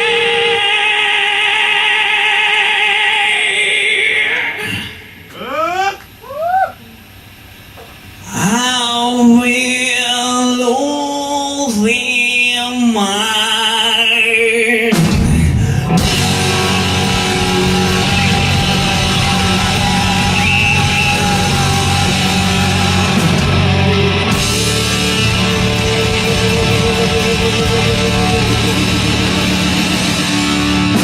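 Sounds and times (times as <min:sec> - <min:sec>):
hard rock band playing: 0:00.0 - 0:01.6, 0:14.9 - 0:31.0.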